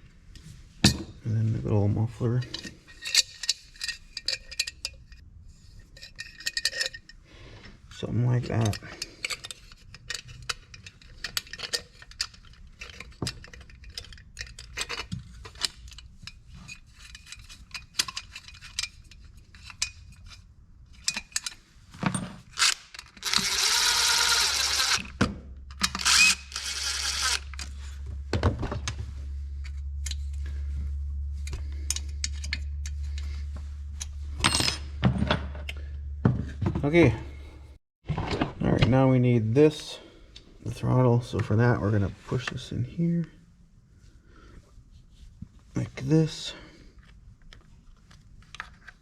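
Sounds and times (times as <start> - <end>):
metal parts and tools clinking: 2.2 - 5.2, 6.0 - 7.2, 7.9 - 28.0, 29.6 - 35.8
steady low hum: 22.6 - 37.8.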